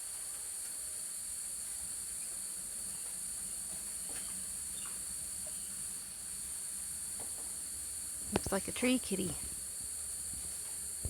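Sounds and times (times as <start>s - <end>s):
insects chirping: 4.1s - 11.0s.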